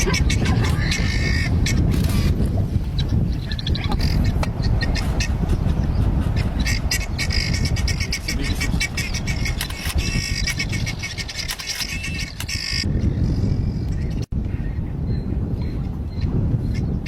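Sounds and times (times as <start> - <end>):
birds squawking: 0.0 - 12.9.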